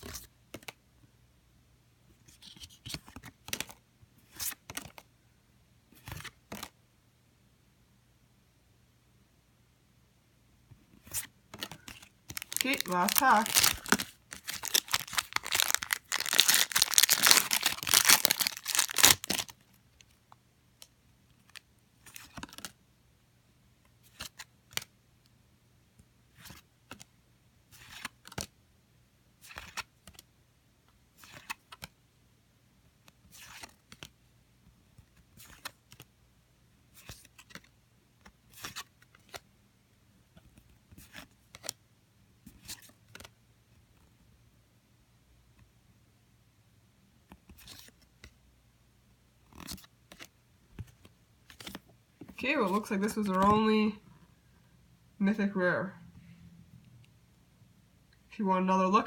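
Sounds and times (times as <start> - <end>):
wrapper tearing and crinkling: 12.3 - 19.6.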